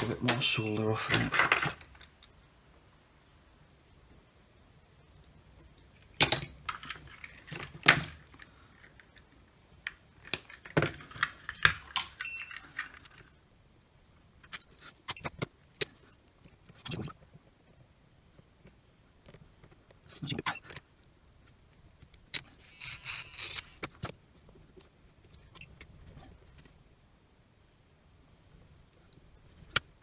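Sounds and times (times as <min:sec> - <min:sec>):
metal parts clattering: 0:00.0 - 0:02.1, 0:10.3 - 0:13.3.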